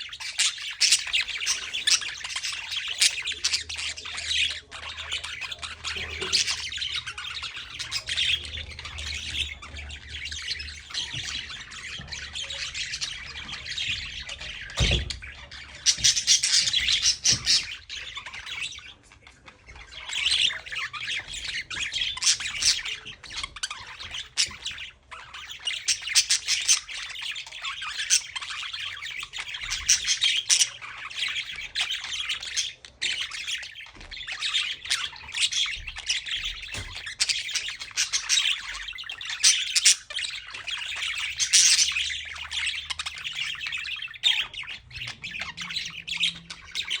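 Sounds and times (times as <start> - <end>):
budgerigars chattering and squawking: 0.0 - 47.0.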